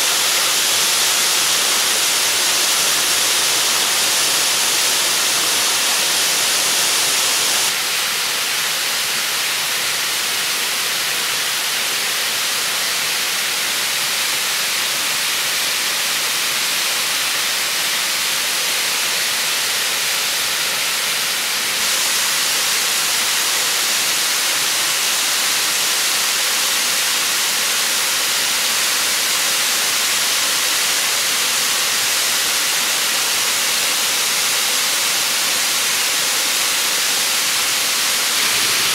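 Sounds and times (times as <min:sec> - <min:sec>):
waterfall rushing: 0:00.0 - 0:08.4, 0:20.8 - 0:38.9.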